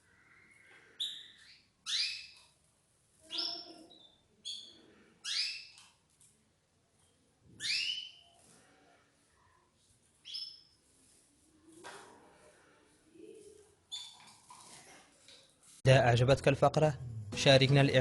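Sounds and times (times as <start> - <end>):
canaries calling: 0.6 - 2.4, 3.2 - 5.8, 7.6 - 8.3.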